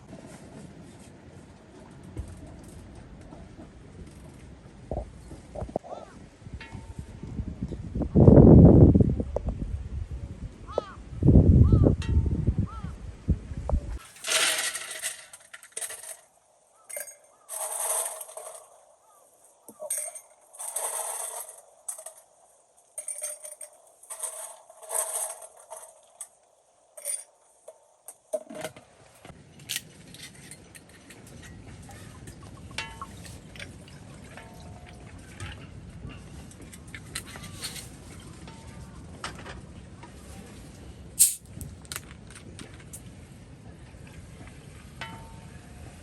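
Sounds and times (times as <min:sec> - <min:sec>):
steady low rumble: 0:01.5 - 0:14.0
small hard objects clinking: 0:41.2 - 0:41.6.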